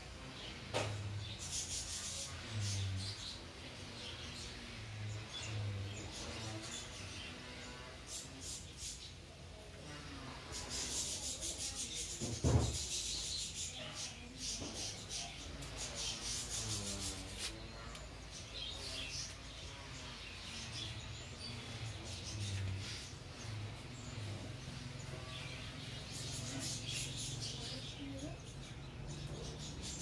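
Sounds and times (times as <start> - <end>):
small birds chirping: 0.0 - 30.0
loud knock: 12.2 - 12.8.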